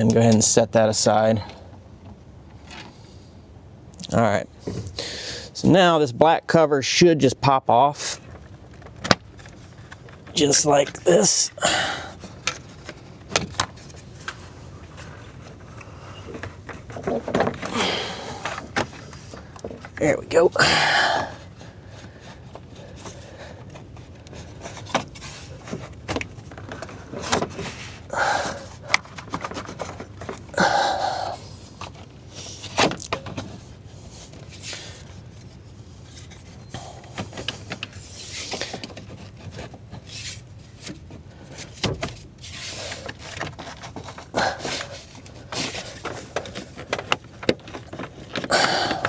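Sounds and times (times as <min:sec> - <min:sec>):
plastic cover clicking and scraping: 0:12.2 - 0:17.8, 0:18.4 - 0:20.1, 0:22.0 - 0:30.6, 0:31.5 - 0:49.0.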